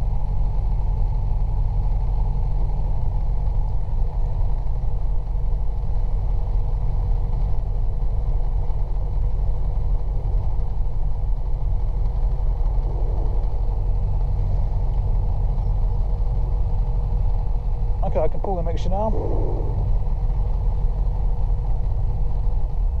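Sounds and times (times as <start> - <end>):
helicopter engine idling: 9.2 - 22.8.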